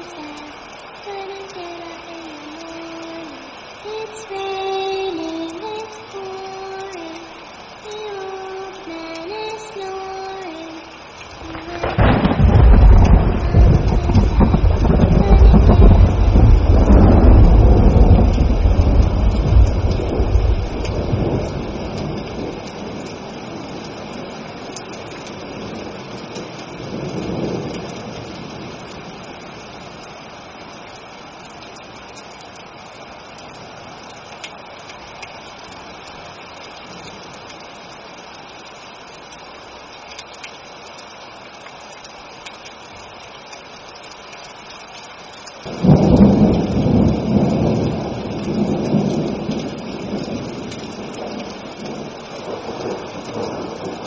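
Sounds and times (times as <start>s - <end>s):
steady rain hiss: 0.0s - 54.0s
low thunder rumble: 11.3s - 24.4s, 45.7s - 54.0s
loud thunder peal: 11.4s - 22.6s, 45.7s - 54.0s.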